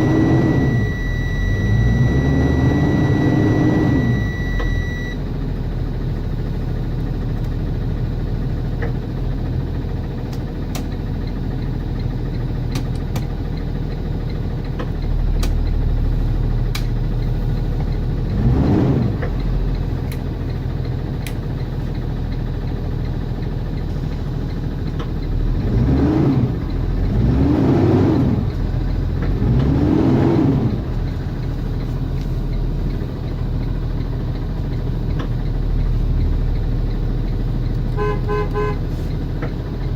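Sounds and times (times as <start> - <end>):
engine revving: 0.0 - 5.2, 17.8 - 20.2, 25.2 - 32.3
diesel bus engine idling: 0.0 - 39.9.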